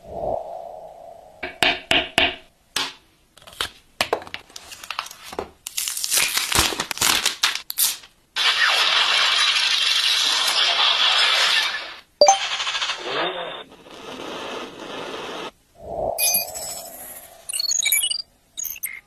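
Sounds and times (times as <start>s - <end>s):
packaging being handled: 3.4s - 8.1s.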